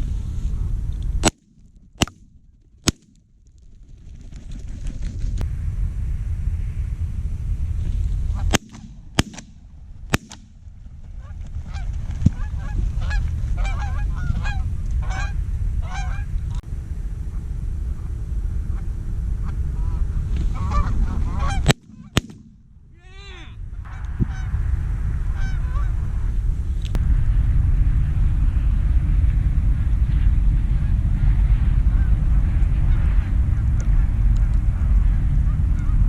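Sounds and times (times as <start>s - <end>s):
low rumble: 0.0s - 36.0s
geese honking: 11.2s - 16.3s, 19.4s - 22.3s, 25.4s - 26.0s.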